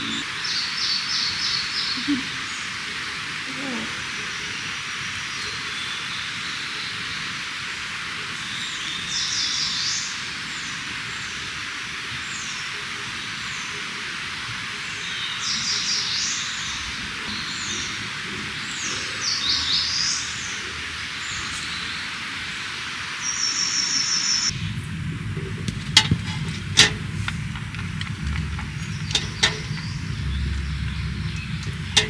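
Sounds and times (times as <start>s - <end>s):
songbird singing: 0.0s - 7.3s, 23.2s - 32.0s.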